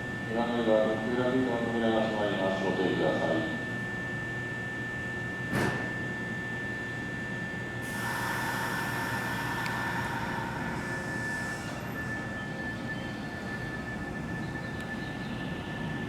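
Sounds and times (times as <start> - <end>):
compressed air hiss: 7.8 - 12.0
steady high tone: 7.8 - 15.6.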